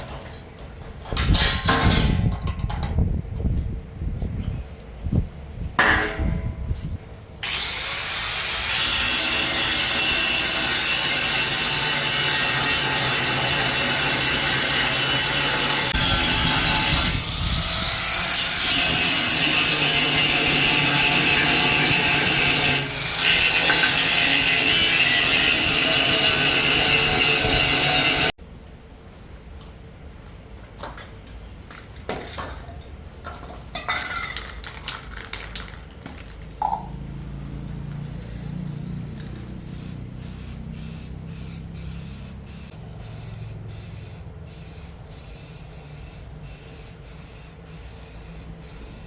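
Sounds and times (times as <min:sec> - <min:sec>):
power tool grinding a surface: 0:07.4 - 0:28.4.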